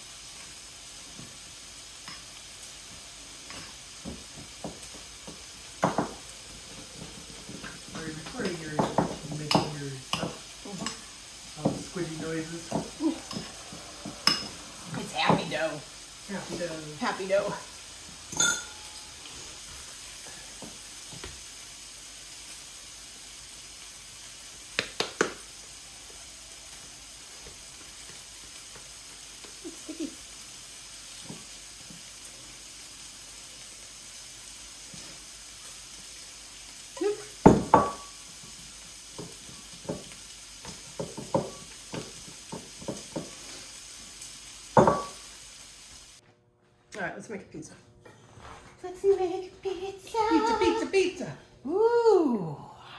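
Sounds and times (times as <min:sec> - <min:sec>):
steady hiss: 0:00.0 - 0:46.2
dough squelching pops: 0:24.7 - 0:25.5.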